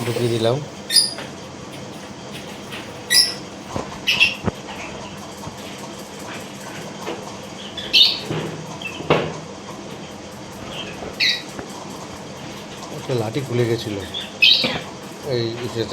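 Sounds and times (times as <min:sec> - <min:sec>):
lovebirds chirping: 0:00.0 - 0:03.5.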